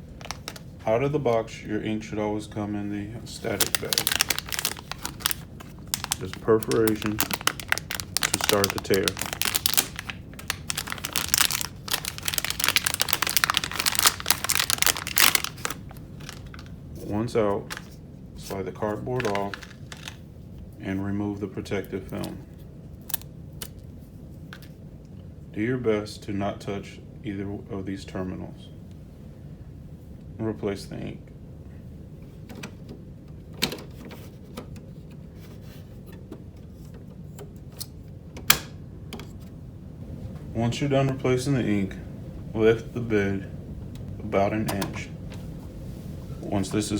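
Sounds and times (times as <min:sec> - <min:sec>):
plastic bag tearing and crinkling: 0:00.2 - 0:00.7, 0:03.4 - 0:16.7, 0:19.2 - 0:20.2.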